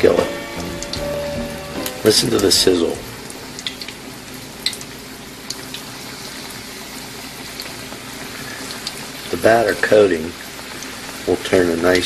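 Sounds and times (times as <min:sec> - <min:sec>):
battered flowers frying in oil: 0:00.0 - 0:12.0
oil pops and crackles: 0:04.6 - 0:06.6, 0:07.5 - 0:09.9.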